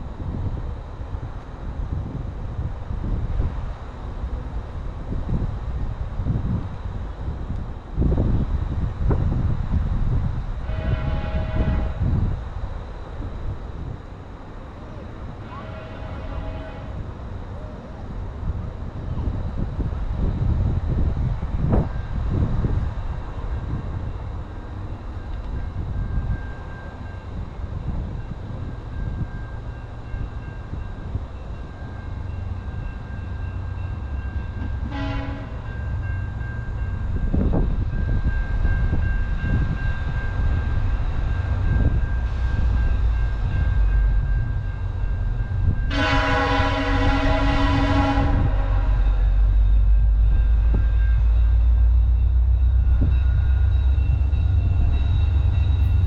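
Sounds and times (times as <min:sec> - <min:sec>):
diesel train rumbling: 0:00.0 - 0:56.0
train horn blasts: 0:10.6 - 0:12.3, 0:15.3 - 0:17.1, 0:34.6 - 0:35.8, 0:45.8 - 0:49.6.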